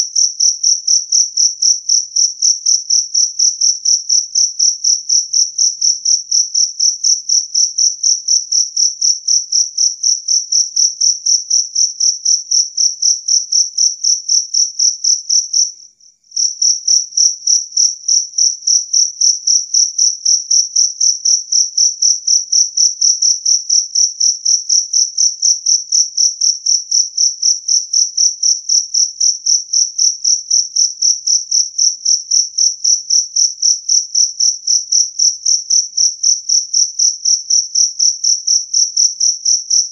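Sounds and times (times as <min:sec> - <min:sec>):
field cricket chirping: 0:00.0 - 0:39.9.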